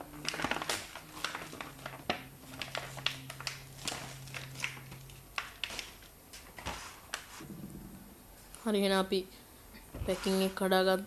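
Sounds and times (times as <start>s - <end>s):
packaging crinkling and tearing: 0.0s - 7.3s
faint low hum: 0.0s - 11.0s.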